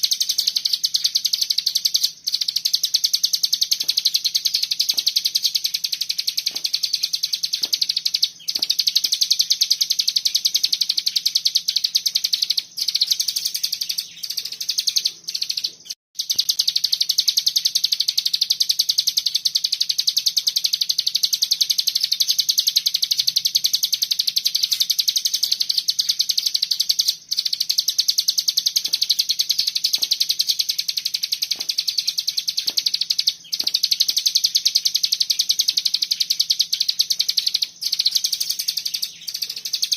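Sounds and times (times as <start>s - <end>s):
bird rattling song: 0.0s - 39.9s.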